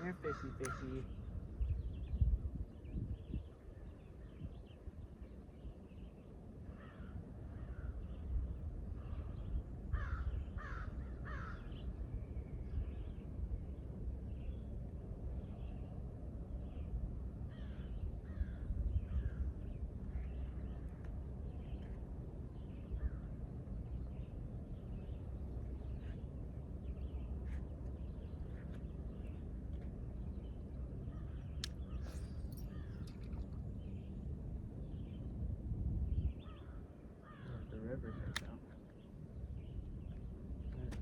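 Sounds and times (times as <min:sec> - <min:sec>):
birds making crow-like calls: 0:00.0 - 0:01.3, 0:06.6 - 0:08.4, 0:09.0 - 0:12.0, 0:17.5 - 0:21.0, 0:23.0 - 0:23.3, 0:31.0 - 0:33.4, 0:36.4 - 0:40.8
low background rumble: 0:00.0 - 0:41.0
sharp clicks: 0:38.3 - 0:38.6.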